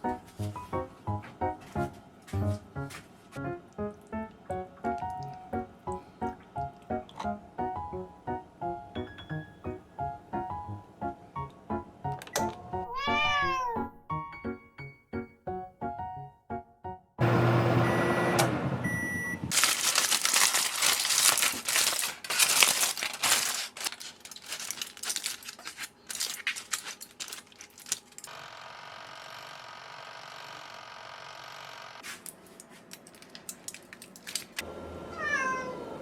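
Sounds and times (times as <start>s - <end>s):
dense crackling and crinkling: 19.5s - 28.4s, 32.0s - 34.6s.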